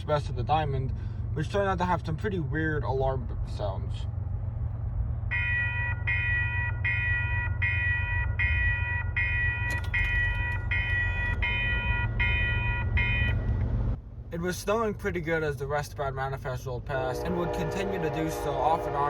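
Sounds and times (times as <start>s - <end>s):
low rumble: 0.0s - 15.6s
crossing electronic alarm tone: 5.3s - 13.6s.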